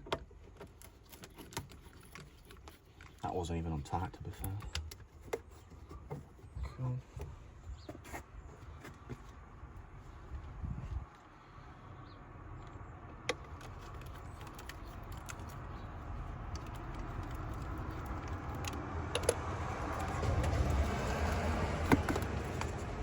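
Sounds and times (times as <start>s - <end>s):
steady low rumble: 9.4s - 13.1s.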